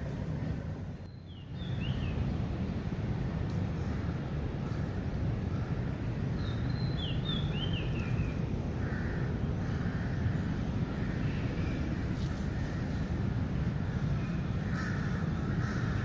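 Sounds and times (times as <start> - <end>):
bird chirping: 1.0 - 2.2, 6.4 - 8.4.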